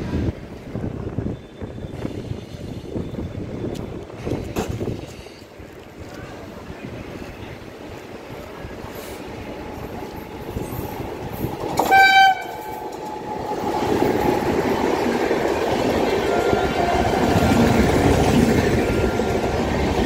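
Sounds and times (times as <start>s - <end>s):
train rolling rumble: 0.0s - 20.0s
locomotive horn blast: 11.8s - 12.8s.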